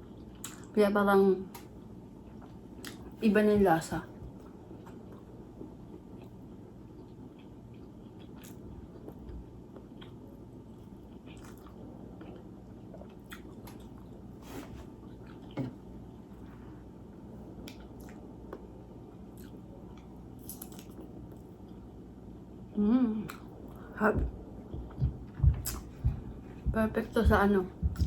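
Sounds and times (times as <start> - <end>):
low room hum: 0.0 - 28.0
chewing food: 4.2 - 14.3, 15.0 - 15.6, 19.3 - 21.9, 23.3 - 28.0.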